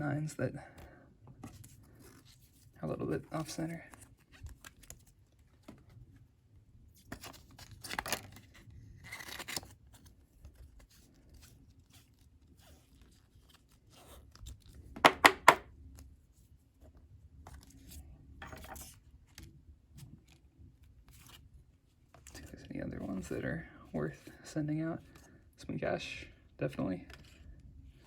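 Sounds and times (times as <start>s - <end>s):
cards and wrappers rustling: 1.4s - 6.2s, 6.9s - 16.1s.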